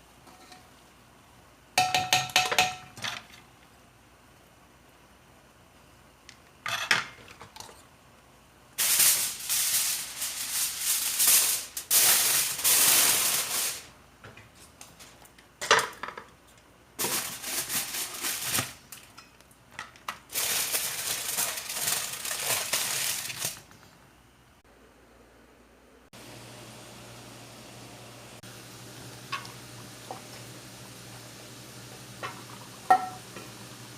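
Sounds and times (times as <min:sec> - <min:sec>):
food rattling in a pot: 0:17.0 - 0:19.2, 0:20.2 - 0:23.7.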